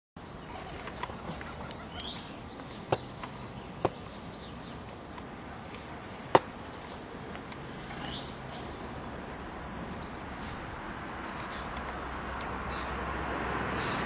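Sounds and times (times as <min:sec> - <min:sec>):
steady background hiss: 0:00.2 - 0:14.0
rising bird chirps: 0:01.3 - 0:06.0, 0:07.7 - 0:11.8.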